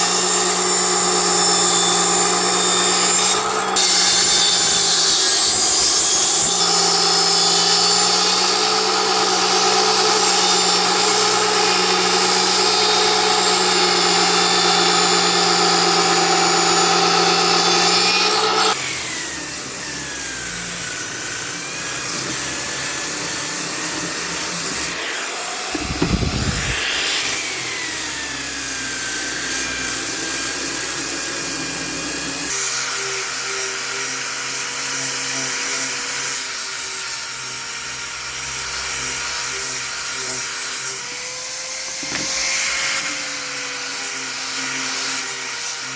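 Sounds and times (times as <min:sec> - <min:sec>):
power tool cutting wood: 0:00.0 - 0:45.9
short low thump: 0:25.8 - 0:27.0.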